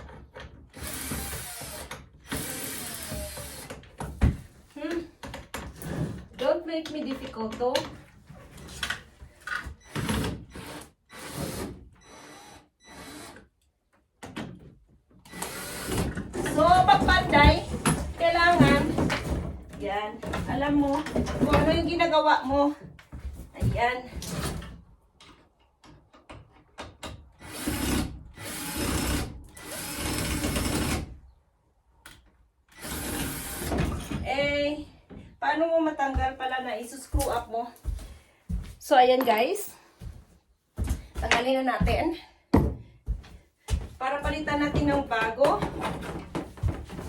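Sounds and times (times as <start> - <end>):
power drill running: 0.7 - 3.7, 9.9 - 13.4, 15.3 - 16.1, 27.4 - 31.0, 32.7 - 33.8.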